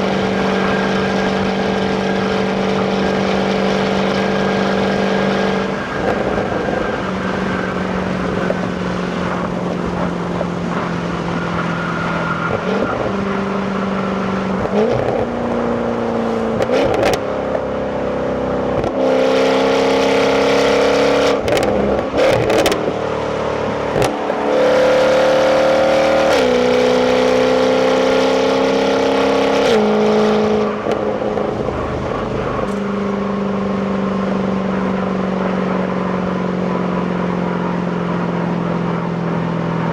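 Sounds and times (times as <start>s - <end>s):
car engine revving through gears: 0.0s - 39.9s.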